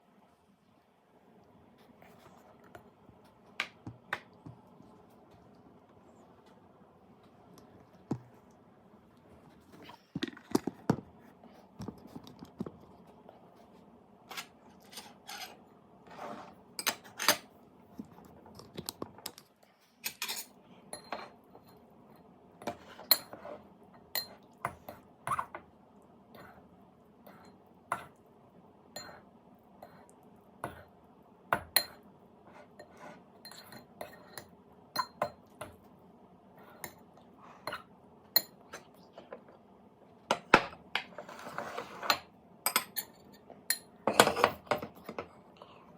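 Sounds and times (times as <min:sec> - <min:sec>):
faint steady hum: 0:00.0 - 0:45.9
cutlery clinking on dishes: 0:20.0 - 0:21.7, 0:40.3 - 0:45.3.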